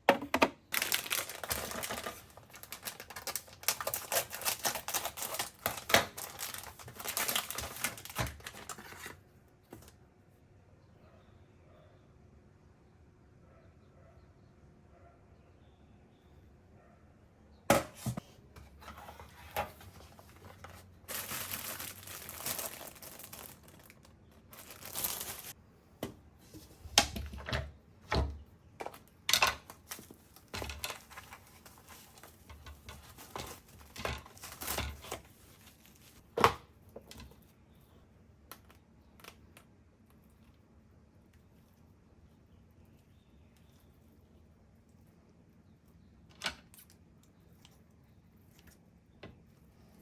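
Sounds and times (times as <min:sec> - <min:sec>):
plastic bags crinkling: 0:00.6 - 0:09.2, 0:18.9 - 0:25.6, 0:28.8 - 0:36.2.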